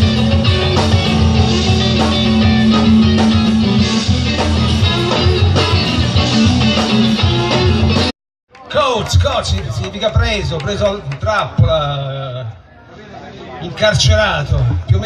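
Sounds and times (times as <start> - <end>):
guitar rock music: 0.0 - 8.1.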